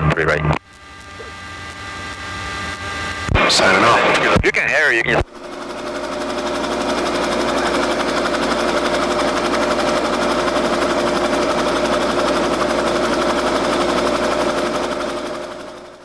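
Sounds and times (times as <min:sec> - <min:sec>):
helicopter engine and rotor: 0:00.0 - 0:16.0.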